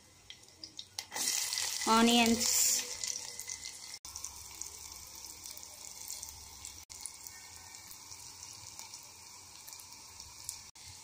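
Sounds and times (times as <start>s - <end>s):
vegetables sizzling in hot oil: 0.1s - 11.0s.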